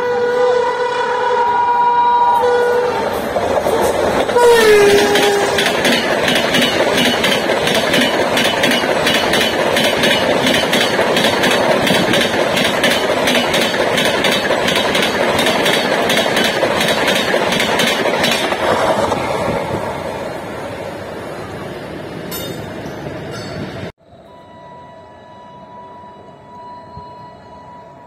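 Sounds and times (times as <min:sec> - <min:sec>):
train coaches rushing past: 0:00.0 - 0:23.9
wheels clattering over rail joints: 0:03.4 - 0:19.2.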